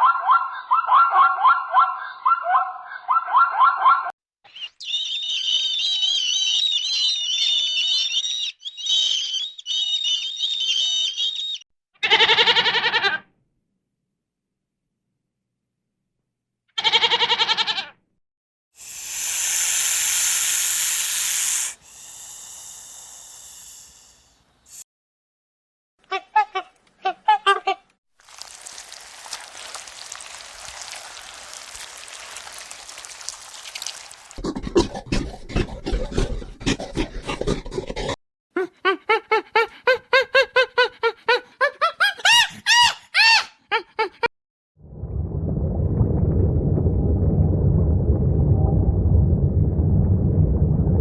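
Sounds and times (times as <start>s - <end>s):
goat bleating: 12.0s - 13.2s, 16.8s - 17.9s
loud hiss: 18.8s - 24.8s
scratchy clattering noise: 34.4s - 38.2s.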